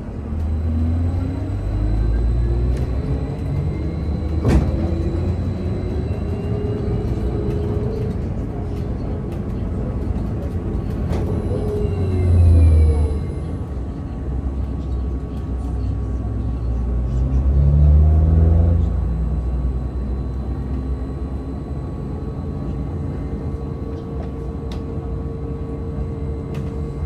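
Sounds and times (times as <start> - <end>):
faint whines: 0.0 - 8.4, 18.8 - 27.0
trolleybus cabin rumble: 0.0 - 27.0.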